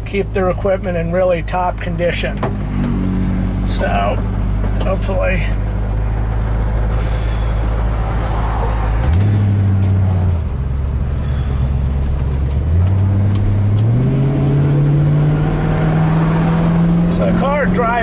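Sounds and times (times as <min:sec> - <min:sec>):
car engine running: 0:00.0 - 0:18.0
tyre and road noise: 0:00.0 - 0:18.0.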